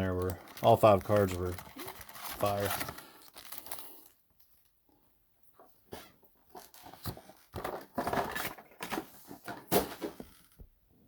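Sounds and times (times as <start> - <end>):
foil card packs crinkling: 0.0 - 4.7.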